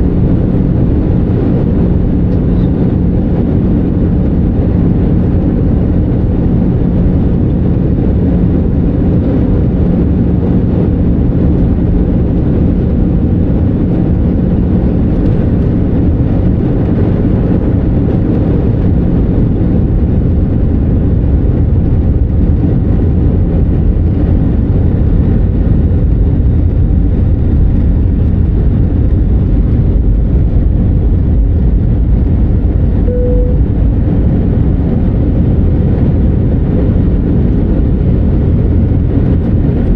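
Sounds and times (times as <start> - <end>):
low hum: 0.0 - 21.2, 26.1 - 39.9
airplane cabin engine and airflow: 0.0 - 39.9
short single tone: 33.0 - 34.0.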